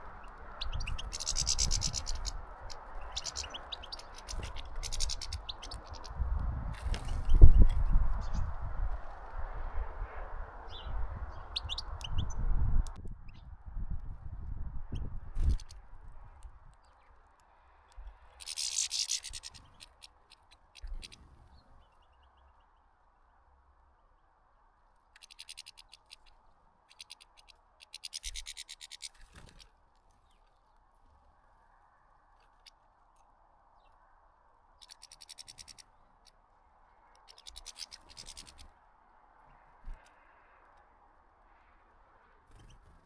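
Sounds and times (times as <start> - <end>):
finches rasping calls: 0.0 - 6.2, 10.0 - 12.4, 18.2 - 21.3, 25.2 - 29.7, 34.8 - 36.4, 37.2 - 38.7
faint background hum: 0.0 - 43.0.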